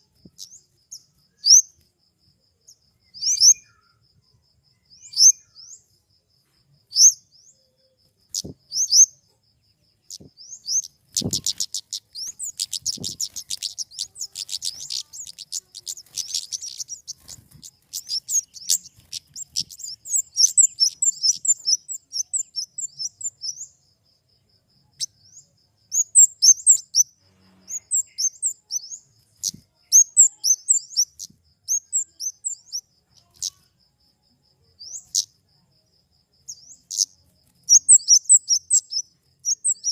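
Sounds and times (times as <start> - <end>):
high-pitched bird chirps: 0.0 - 1.8, 3.0 - 4.0, 4.8 - 5.9, 6.9 - 9.3, 10.1 - 23.8, 25.0 - 33.7, 34.8 - 35.3, 36.5 - 39.9
rapid ticking bird call: 10.7 - 23.1.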